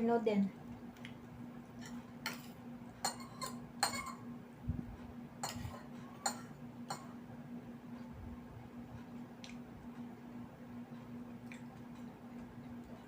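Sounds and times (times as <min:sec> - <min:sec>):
faint steady hum: 0:00.0 - 0:13.0
cutlery clinking on a plate: 0:01.8 - 0:04.2.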